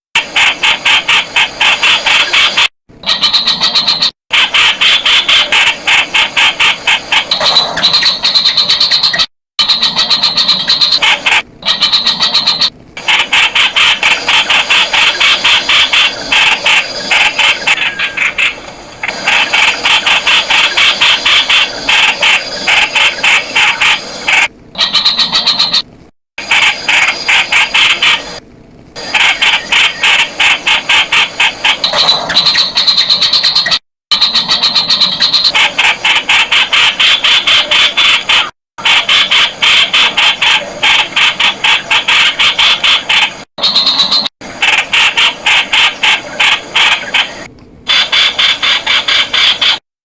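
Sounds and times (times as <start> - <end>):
bulbul calling harsh notes: 2.0 - 25.9, 31.7 - 44.4.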